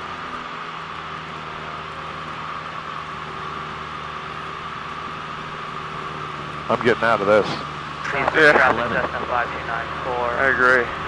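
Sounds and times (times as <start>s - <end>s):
plane engine and propeller drone: 0.0s - 11.0s.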